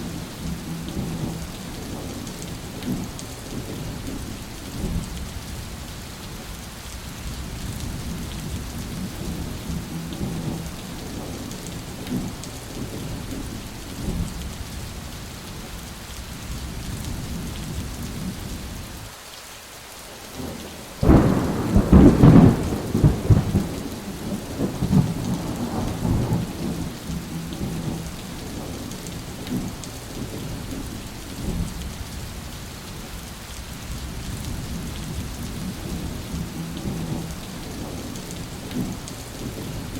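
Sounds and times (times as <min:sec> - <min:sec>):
low rolling thunder: 0:00.0 - 0:05.5, 0:07.2 - 0:14.6, 0:20.4 - 0:32.2, 0:33.8 - 0:39.9
steady rain: 0:00.0 - 0:39.9
loud thunder clap: 0:21.0 - 0:28.0.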